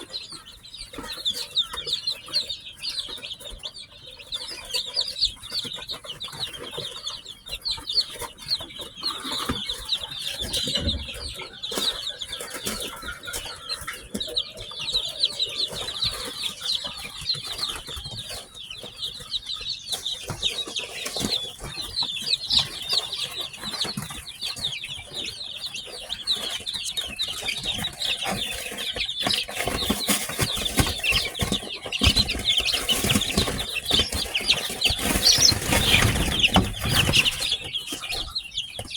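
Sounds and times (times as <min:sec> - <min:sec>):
chicks peeping: 0:00.0 - 0:38.9
rustles and bumps: 0:27.7 - 0:38.9.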